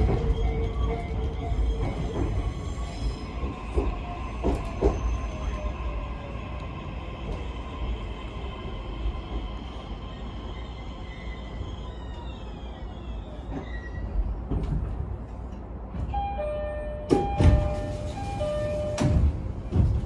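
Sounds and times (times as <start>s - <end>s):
train wheels rumbling on rails: 0.0s - 16.2s, 17.0s - 20.0s
train inverter whine: 15.9s - 20.0s
pair of steady tones: 16.2s - 19.3s.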